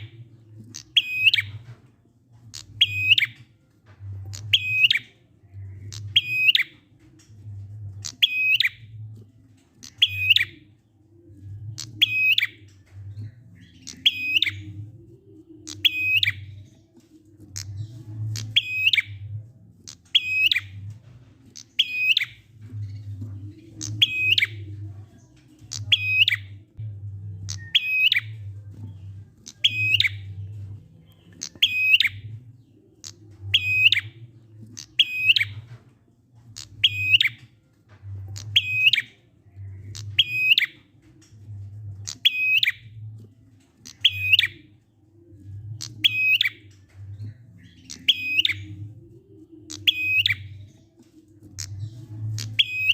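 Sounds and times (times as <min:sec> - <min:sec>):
low hum: 0:22.4 - 0:42.2.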